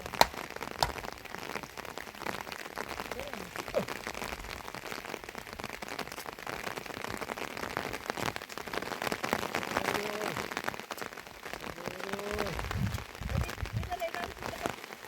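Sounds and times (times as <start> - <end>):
heavy rain falling: 0.0 - 15.0
faint voice-like calls: 9.6 - 10.5, 11.7 - 12.7.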